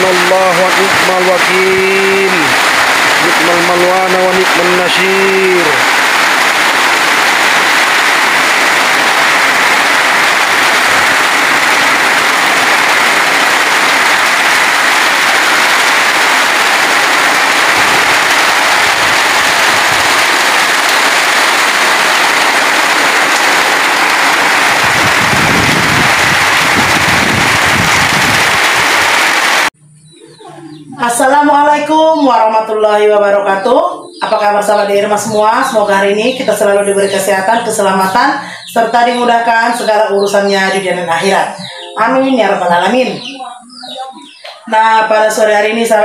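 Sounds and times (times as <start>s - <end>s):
heavy rain on metal roof: 0.0s - 29.8s.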